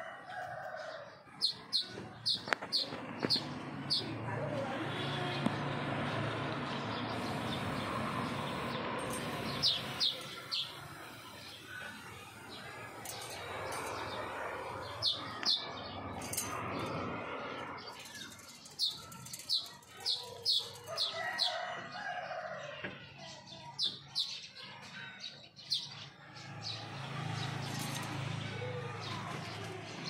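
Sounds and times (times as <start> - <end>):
bird chirping: 6.9 - 15.9.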